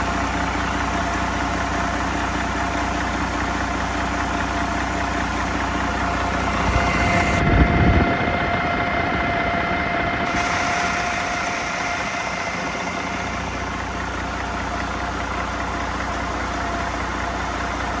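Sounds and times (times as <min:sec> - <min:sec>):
diesel engine running: 0:00.0 - 0:18.0
high whine: 0:05.6 - 0:15.4.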